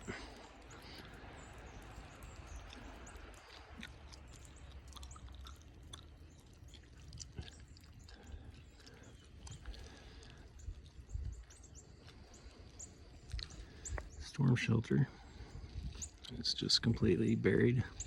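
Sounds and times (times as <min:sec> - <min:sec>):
gum chewing clicks and smacks: 0:00.0 - 0:14.2, 0:15.8 - 0:16.4.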